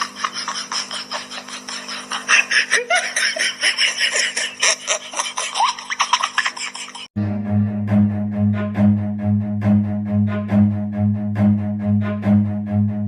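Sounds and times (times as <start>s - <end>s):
person laughing: 0.0s - 7.1s
low bowed-string music: 7.2s - 13.0s.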